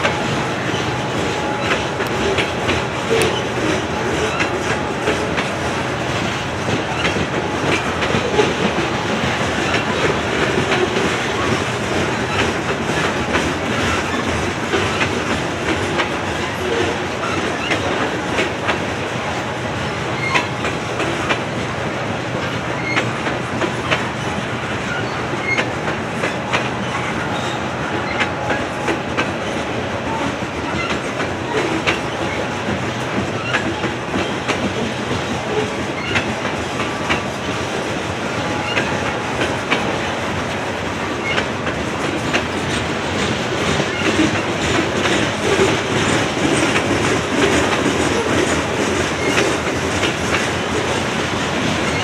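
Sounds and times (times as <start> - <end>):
train cars rolling rumble: 0.0 - 52.0
wheels clattering on rails: 0.0 - 52.0.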